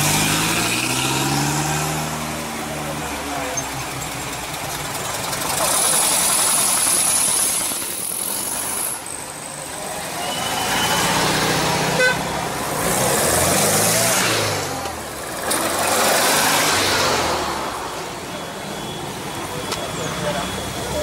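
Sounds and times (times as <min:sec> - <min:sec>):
engine revving: 0:00.0 - 0:09.0, 0:10.0 - 0:21.0
car engines pulling away: 0:00.0 - 0:21.0
car horn toot: 0:11.9 - 0:12.4.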